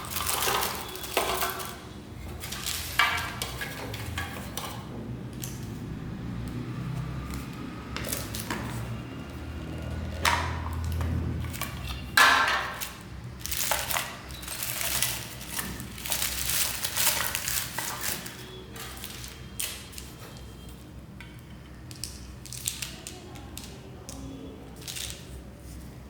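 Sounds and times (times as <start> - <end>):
candy wrapper crinkling and tearing: 13.3 - 20.2, 21.8 - 23.8.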